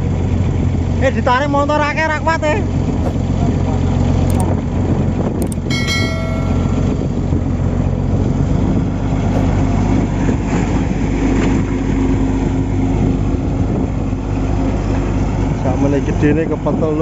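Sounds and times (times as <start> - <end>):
short high tone: 5.7 - 7.2.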